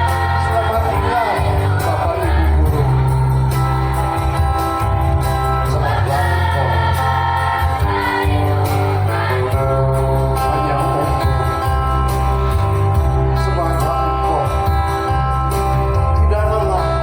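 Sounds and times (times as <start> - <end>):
choir singing in unison: 0.0 - 3.2, 5.6 - 9.9
instrumental accompaniment with bass notes: 0.0 - 17.0.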